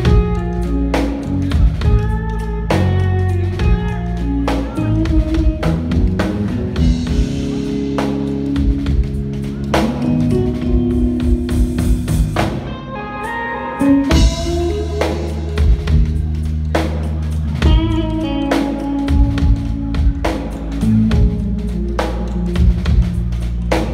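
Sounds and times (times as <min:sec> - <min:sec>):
bass guitar: 0:00.0 - 0:23.9
drum kit: 0:00.0 - 0:23.9
electric guitar playing melodic lines: 0:00.0 - 0:23.9.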